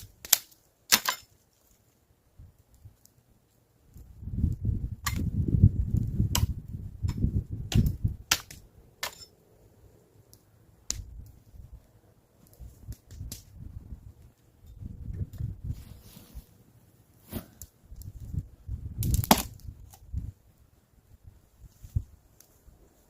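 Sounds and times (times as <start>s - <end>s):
sharp cracks and snaps: 0.0s - 1.9s, 5.9s - 9.3s, 10.3s - 11.4s, 12.4s - 13.6s, 19.0s - 20.1s
rustling and handling noise: 0.5s - 3.6s, 15.4s - 18.4s.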